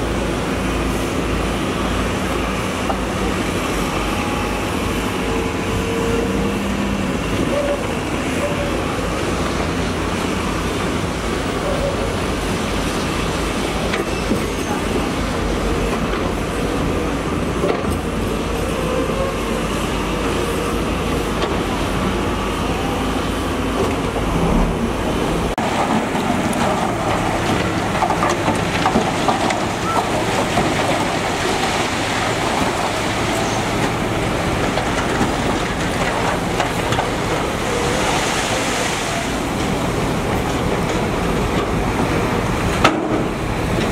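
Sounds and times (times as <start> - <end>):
heavy diesel machinery running: 0.0 - 43.9
deep low rumble: 24.0 - 25.6.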